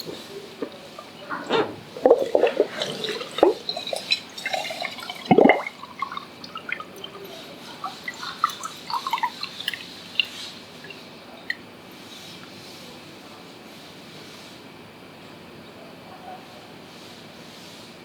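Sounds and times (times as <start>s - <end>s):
water gurgling and dripping: 0.0s - 11.6s.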